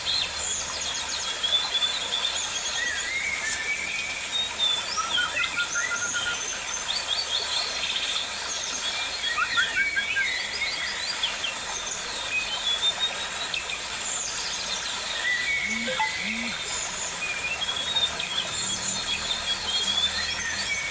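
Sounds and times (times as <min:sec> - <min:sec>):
birds chirping and calling: 0:14.4 - 0:20.9.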